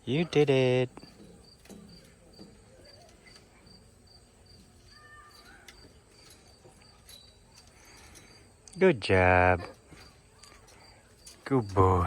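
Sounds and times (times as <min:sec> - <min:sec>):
faint insect chirping: 0:00.0 - 0:12.0.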